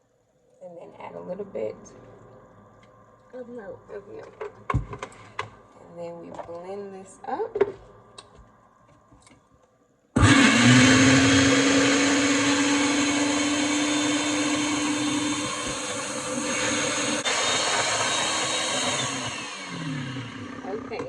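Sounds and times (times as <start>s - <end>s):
kitchen blender running: 10.2s - 21.0s.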